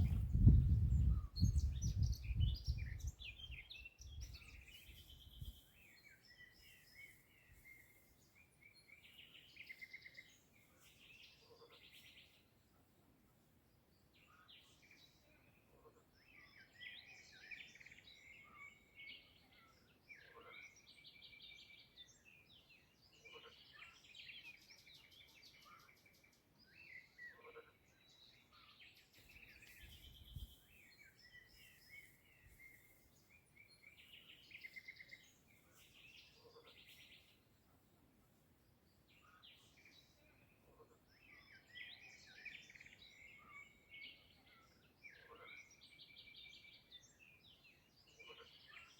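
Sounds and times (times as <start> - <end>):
songbirds chirping and singing: 0.0 - 12.6, 13.9 - 37.9, 38.5 - 48.9.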